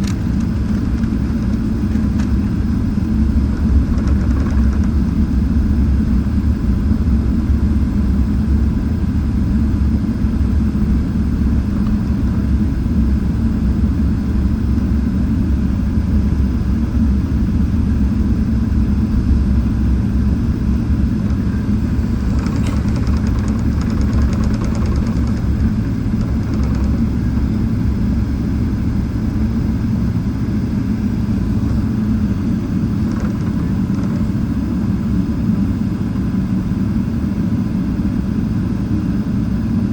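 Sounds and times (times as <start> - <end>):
jet engines rumbling: 0.0 - 39.9
faint rapid rattling: 3.4 - 5.5, 21.2 - 28.8, 32.6 - 34.7.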